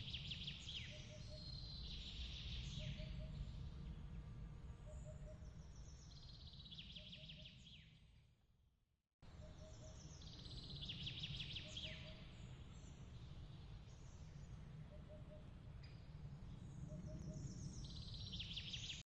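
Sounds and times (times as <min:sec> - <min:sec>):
low steady rumble: 0:00.0 - 0:06.8
songbird singing: 0:00.0 - 0:08.0, 0:09.2 - 0:19.0.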